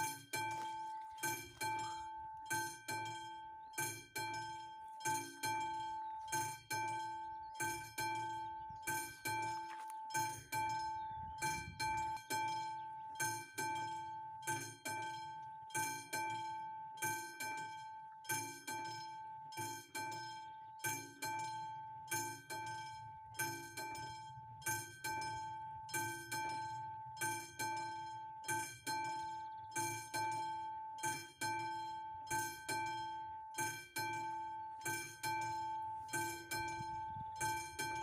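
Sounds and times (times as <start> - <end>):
level crossing bell ringing: 0.0 - 11.1, 32.6 - 38.0.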